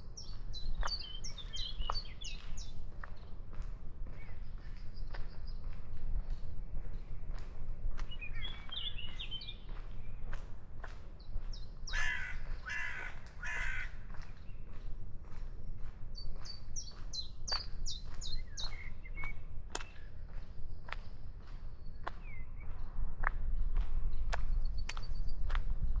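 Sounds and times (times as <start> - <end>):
harsh raspy bird calls: 11.9 - 14.0.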